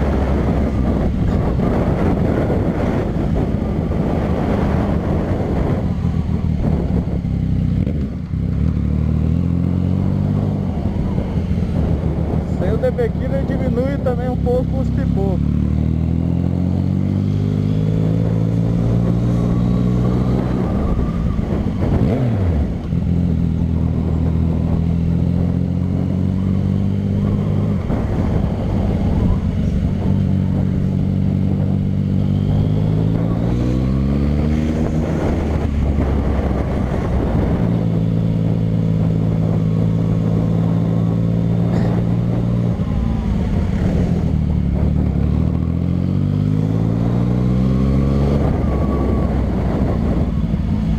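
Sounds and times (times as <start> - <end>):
loud motorcycle engine revving: 0.0 - 50.9.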